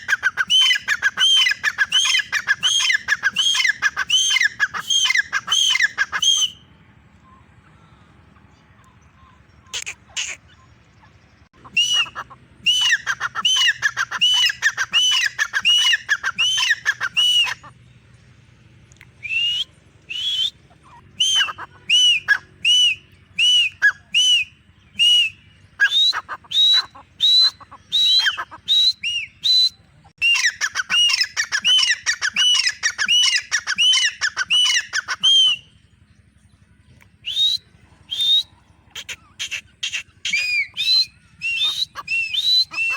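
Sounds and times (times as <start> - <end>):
francolin calling shrill notes: 39.4 - 42.9.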